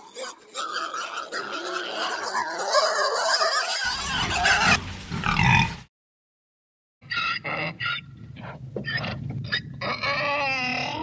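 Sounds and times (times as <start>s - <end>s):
pigs squealing and grunting: 0.0s - 5.8s, 7.1s - 8.0s, 8.8s - 11.0s.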